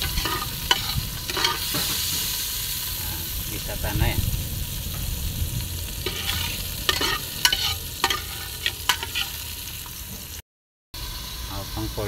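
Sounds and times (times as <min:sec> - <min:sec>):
spatula scraping and knocking pot: 0:00.0 - 0:02.3, 0:06.0 - 0:09.4
onion and garlic sizzling in oil: 0:00.0 - 0:10.4, 0:11.0 - 0:12.0.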